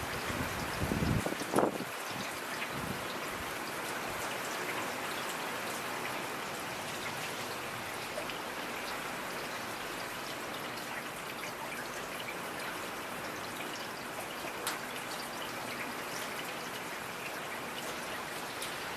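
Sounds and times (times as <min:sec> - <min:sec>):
rain falling: 0:00.0 - 0:18.9
raindrops ticking: 0:09.9 - 0:18.9.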